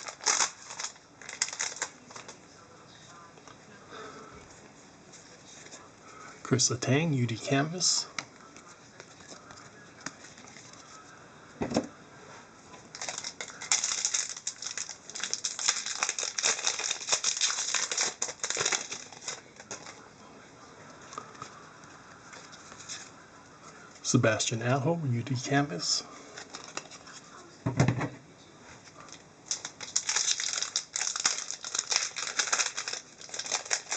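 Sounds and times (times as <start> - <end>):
plastic packaging crinkling: 0.0 - 2.4, 8.6 - 11.0, 12.9 - 20.1, 26.2 - 27.2, 29.0 - 33.9.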